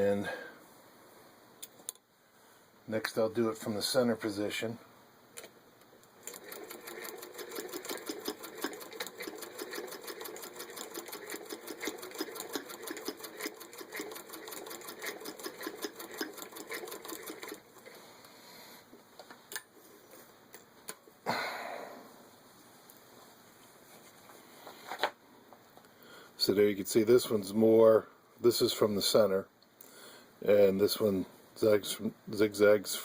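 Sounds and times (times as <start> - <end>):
sewing machine clattering: 6.2 - 18.0.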